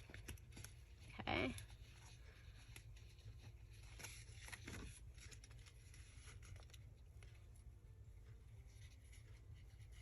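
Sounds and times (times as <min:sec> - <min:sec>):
low room hum: 0:00.0 - 0:10.0
paper rustling and clicking: 0:00.0 - 0:10.0.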